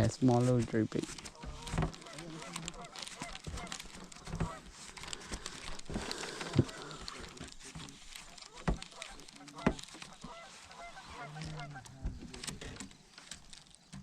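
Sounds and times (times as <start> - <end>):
crackling rustling background: 0.0 - 14.0
honking animal calls: 1.4 - 4.8, 6.0 - 7.4, 8.4 - 12.1.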